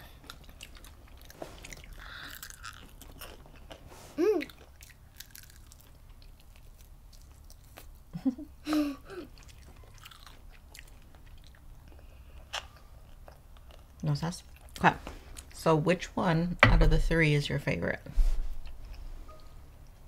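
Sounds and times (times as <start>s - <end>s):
chewing crunchy fried food: 0.0s - 8.2s, 9.2s - 15.6s.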